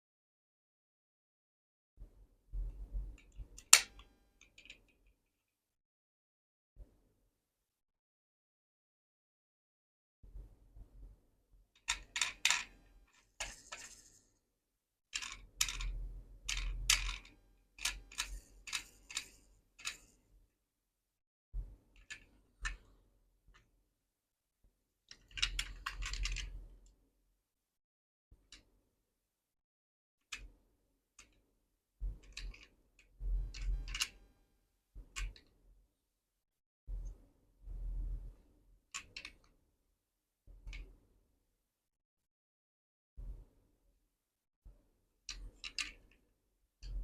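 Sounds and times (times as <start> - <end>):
model car clicks and taps: 3.2 - 5.0, 45.3 - 46.2
model cars clicking together: 11.8 - 12.8, 15.2 - 20.1, 25.1 - 26.5, 32.2 - 32.8, 33.5 - 34.2, 39.0 - 39.5, 45.3 - 46.2.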